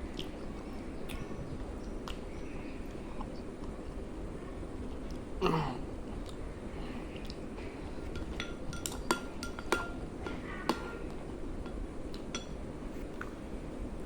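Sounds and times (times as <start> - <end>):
cutlery clinking against dish: 7.6 - 13.3.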